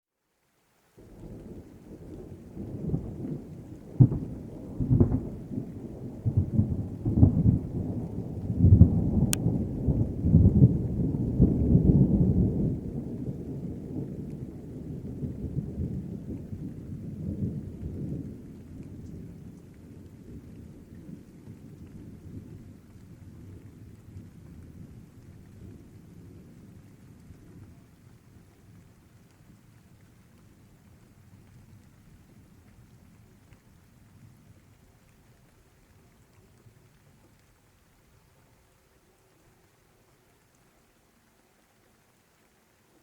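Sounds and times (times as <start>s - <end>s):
rain: 0.0s - 43.0s
sharp thunder cracks: 1.0s - 12.8s
thunder rumbling: 1.0s - 37.8s.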